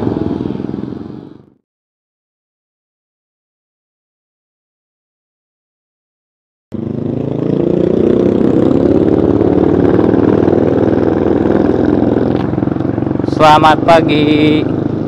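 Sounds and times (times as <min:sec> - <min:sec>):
motorcycle engine running: 0:00.0 - 0:01.6, 0:06.7 - 0:15.0.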